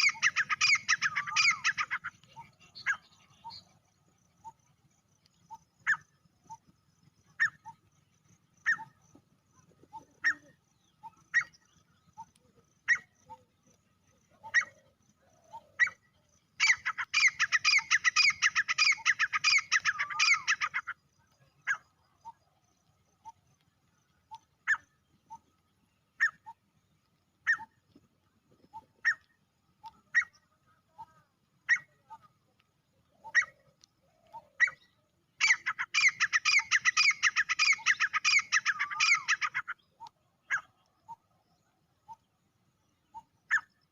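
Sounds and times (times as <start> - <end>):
bird calling sharp notes: 0.0 - 3.6, 16.6 - 20.9, 35.4 - 39.8
harsh repeated bird calls: 0.0 - 3.8, 14.4 - 22.4, 33.2 - 41.2.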